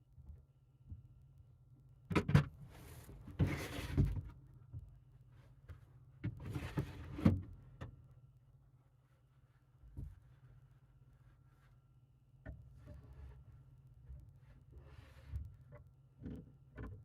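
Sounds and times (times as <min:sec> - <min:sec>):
scraping and rustling with knocks: 0:02.6 - 0:08.0, 0:09.1 - 0:17.0.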